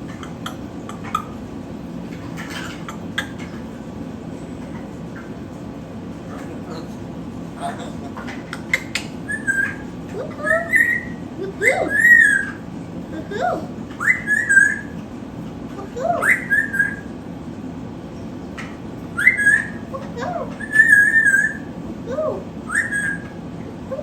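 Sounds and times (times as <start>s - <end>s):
pet bird whistling: 8.7s - 12.6s, 14.0s - 15.0s, 16.0s - 17.2s, 19.1s - 24.0s.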